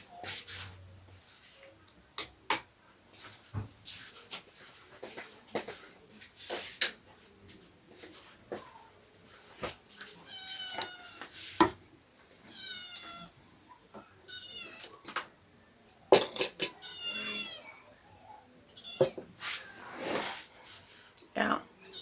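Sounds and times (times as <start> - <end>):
cat meowing: 10.2 - 11.3, 12.5 - 13.4, 14.0 - 15.0, 16.7 - 18.0, 18.7 - 19.2.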